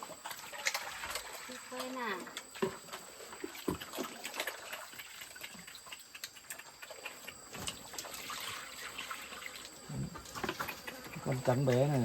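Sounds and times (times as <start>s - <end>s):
piglets smacking and slurping: 3.4s - 11.5s.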